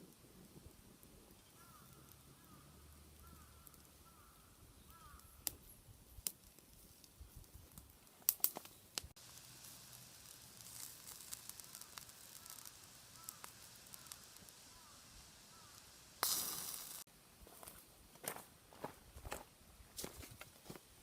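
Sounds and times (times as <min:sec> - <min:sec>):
fire popping: 0:00.0 - 0:17.1
bonfire crackling: 0:00.0 - 0:17.7.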